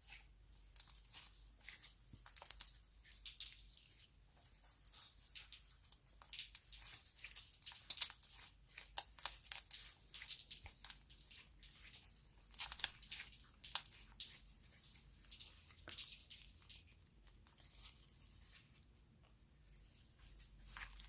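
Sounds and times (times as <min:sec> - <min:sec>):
slime crackling and tearing: 0:04.6 - 0:18.2.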